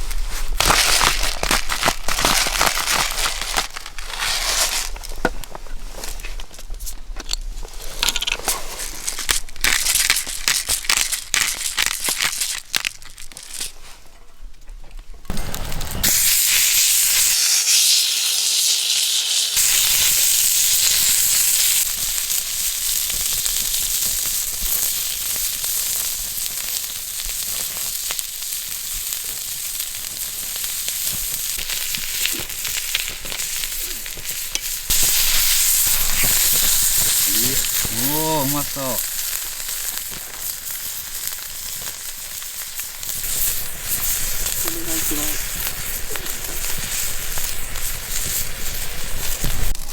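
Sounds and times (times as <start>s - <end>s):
food sizzling in a hot pan: 0.0s - 5.1s, 15.3s - 49.9s.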